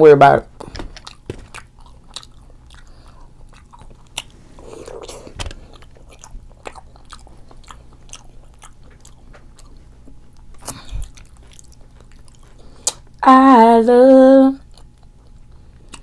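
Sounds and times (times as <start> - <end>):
wet chewing mouth clicks: 1.0 - 13.2, 14.6 - 16.0.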